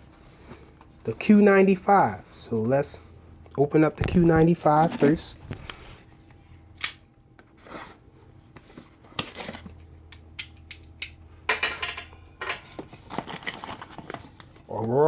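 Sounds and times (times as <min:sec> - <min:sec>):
packaging rustling scrapes: 0:07.5 - 0:09.8, 0:12.7 - 0:14.7.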